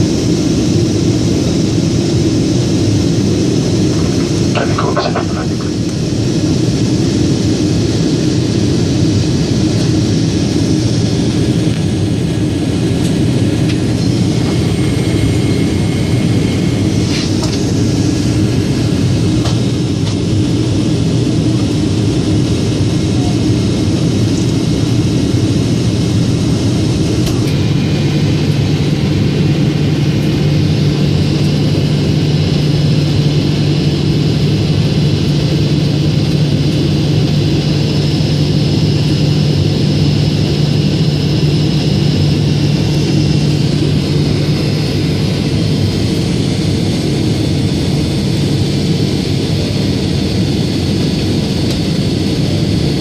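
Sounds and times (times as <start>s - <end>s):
jet engines rumbling: 0.0s - 53.0s
low steady hum: 0.9s - 21.7s.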